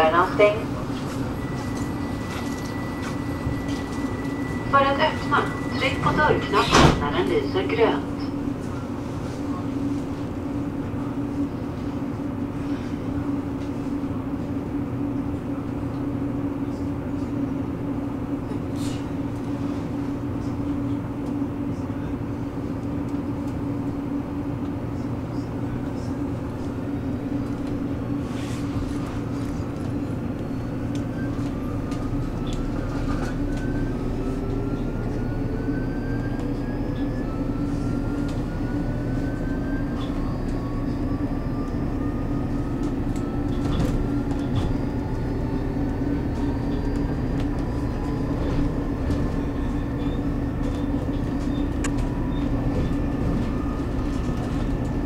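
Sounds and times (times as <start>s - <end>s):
train hum and rumble: 0.0s - 55.0s.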